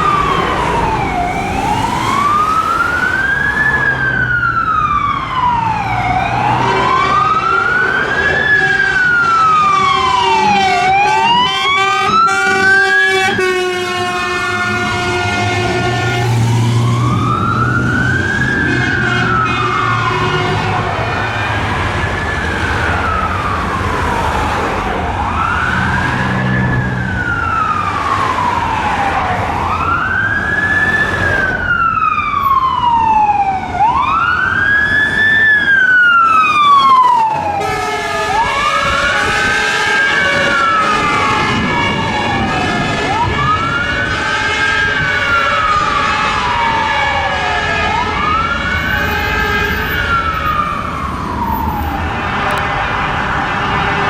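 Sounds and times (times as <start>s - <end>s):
steady held siren tone: 0.0s - 21.3s
fire engine sirens wailing: 0.0s - 54.0s.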